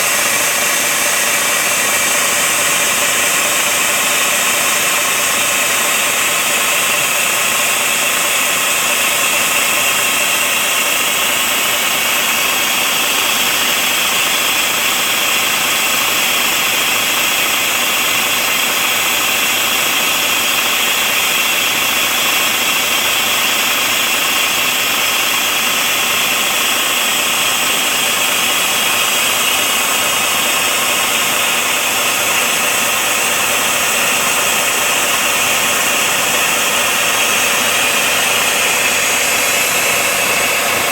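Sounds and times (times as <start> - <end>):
compressed air hissing: 25.6 - 40.9.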